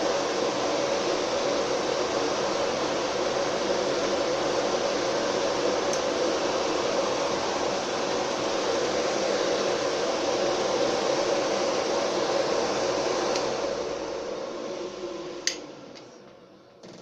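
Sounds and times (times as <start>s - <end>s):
blower fans rushing air: 0.0s - 17.0s
click: 5.9s - 6.1s, 15.4s - 16.1s.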